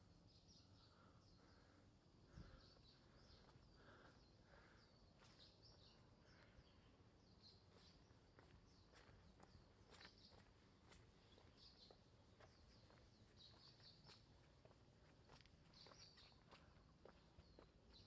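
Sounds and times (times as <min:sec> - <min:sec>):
birds chirping: 0:00.3 - 0:18.0
footsteps on trail: 0:07.6 - 0:18.0.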